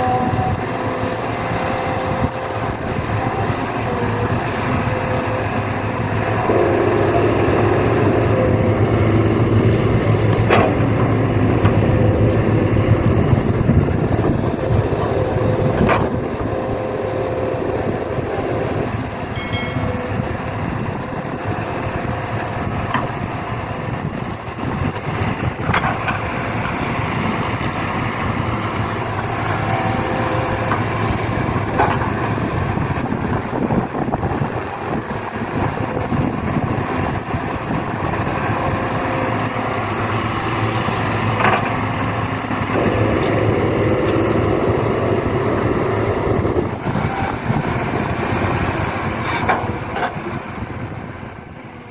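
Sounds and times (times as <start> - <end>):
excavator machine running: 0.0 - 51.9.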